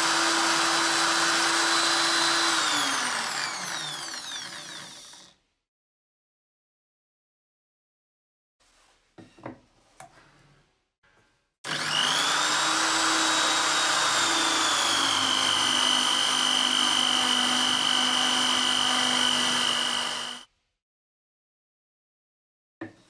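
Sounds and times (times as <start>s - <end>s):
electric drill boring into wood: 0.0s - 5.3s, 11.6s - 20.5s.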